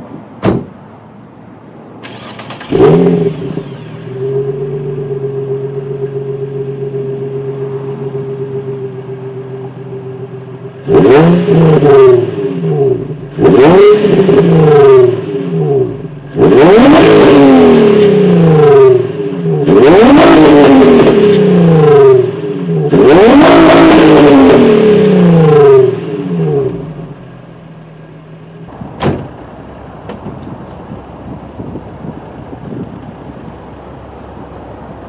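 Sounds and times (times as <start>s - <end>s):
sharp knock: 0.4s - 0.8s, 29.0s - 29.4s
car engine revving: 2.0s - 27.3s.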